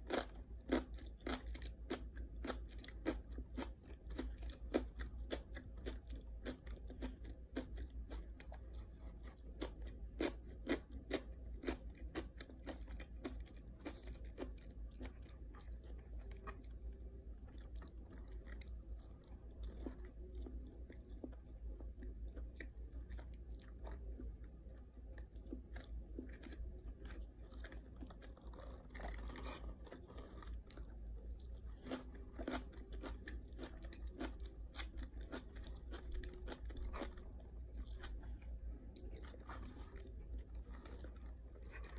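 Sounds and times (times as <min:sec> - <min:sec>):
chewing and crunching kimchi: 0:00.0 - 0:41.9
low hum: 0:12.8 - 0:41.9.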